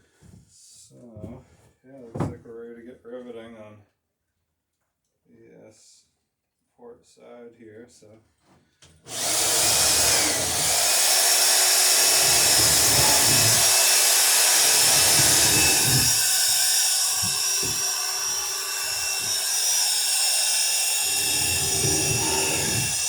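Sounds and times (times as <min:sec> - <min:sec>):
electric drill boring wood: 0:09.1 - 0:23.0.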